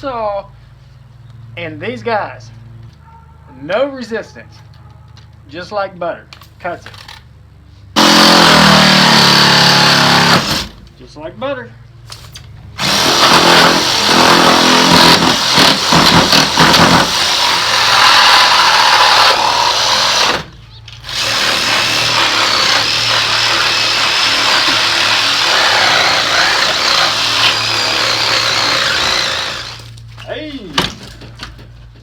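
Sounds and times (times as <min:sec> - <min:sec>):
power saw cutting: 0:08.0 - 0:10.8, 0:12.8 - 0:30.0.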